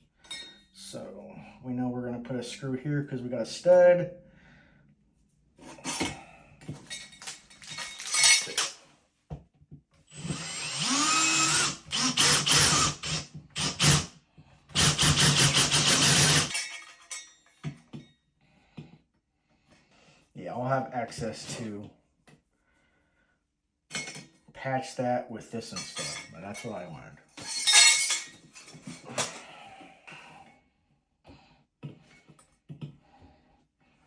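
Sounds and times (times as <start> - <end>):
power drill running: 10.1 - 14.1, 14.8 - 16.5.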